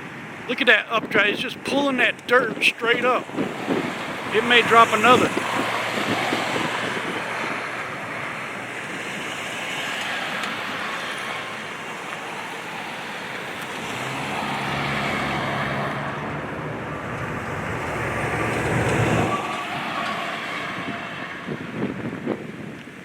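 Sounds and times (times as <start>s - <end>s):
rough wind bumps: 0.0s - 23.0s
wind rushing over microphone: 0.0s - 23.0s
vehicle engine driving past: 9.3s - 21.9s.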